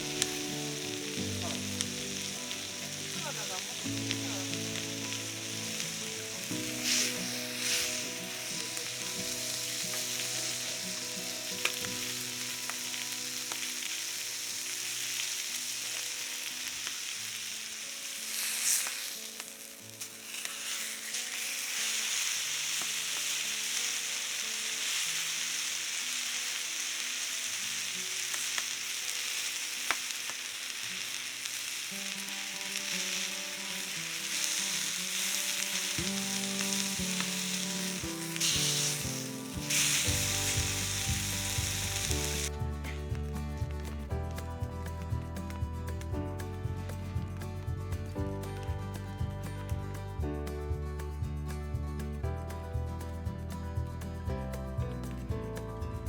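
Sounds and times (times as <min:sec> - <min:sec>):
food sizzling in a pan: 0:00.0 - 0:43.0
soft background music: 0:00.0 - 0:56.0.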